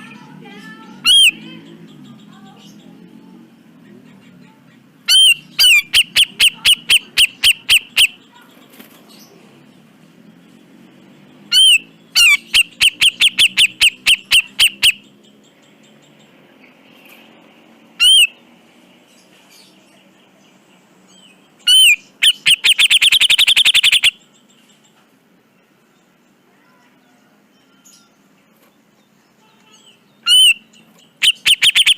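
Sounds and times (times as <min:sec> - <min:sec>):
bulbul calling: 0:00.9 - 0:02.8, 0:05.0 - 0:08.4, 0:11.5 - 0:16.3, 0:18.0 - 0:18.4, 0:21.6 - 0:24.4, 0:29.8 - 0:31.9.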